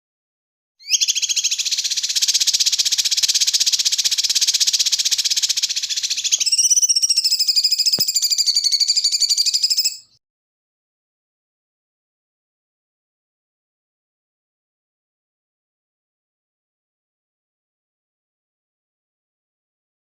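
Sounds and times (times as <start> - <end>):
songbird buzzing trill: 0.8 - 10.1.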